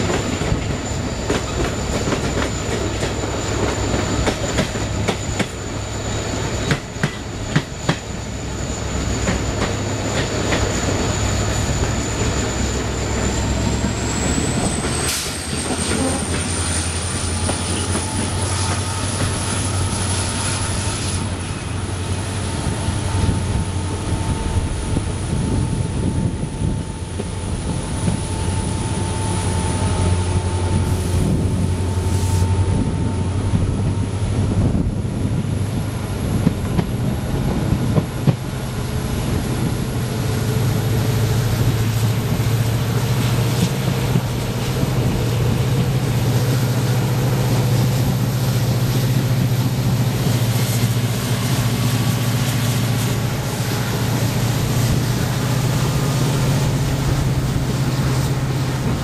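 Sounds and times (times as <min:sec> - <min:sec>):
train rumbling along track: 0:00.0 - 0:59.0.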